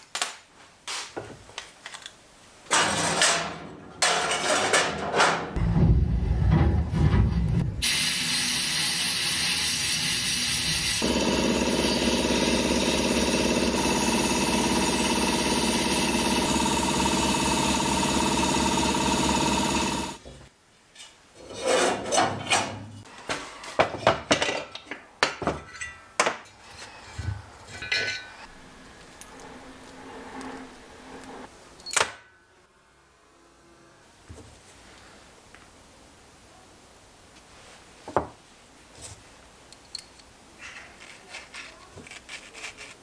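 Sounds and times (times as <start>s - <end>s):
small motor running: 8.3s - 20.2s.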